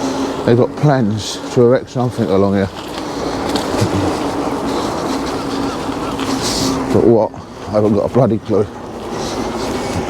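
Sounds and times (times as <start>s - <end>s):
bike wheels rolling and rattling: 2.0s - 10.0s.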